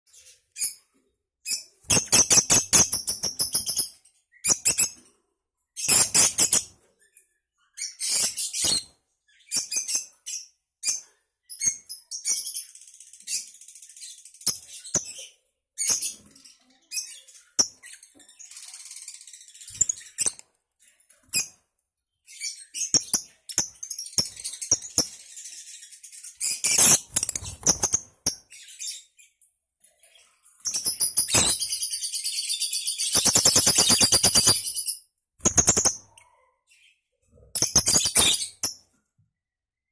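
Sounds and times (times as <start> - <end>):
lovebirds chattering: 30.7 - 38.9
bird rattling trill: 33.0 - 36.0.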